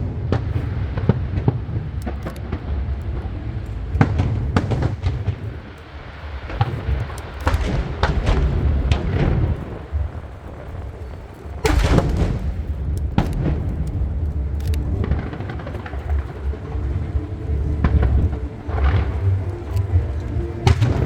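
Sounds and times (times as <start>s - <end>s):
low rumble: 0.0s - 21.0s
fireworks booming and cracking: 4.0s - 17.1s, 20.6s - 21.0s.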